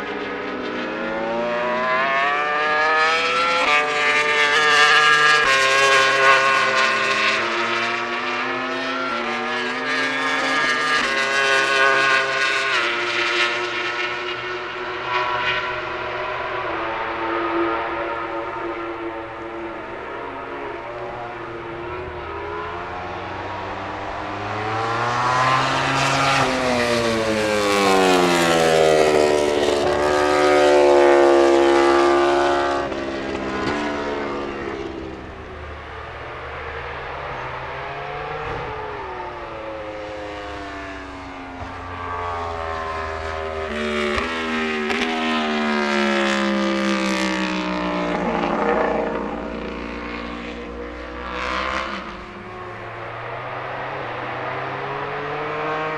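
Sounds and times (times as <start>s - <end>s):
race motorcycles passing at high revs: 0.0s - 55.9s.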